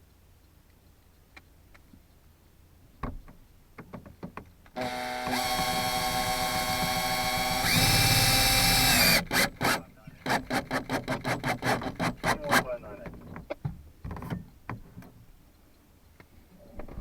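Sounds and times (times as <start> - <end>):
power drill driving screws: 4.8 - 12.6.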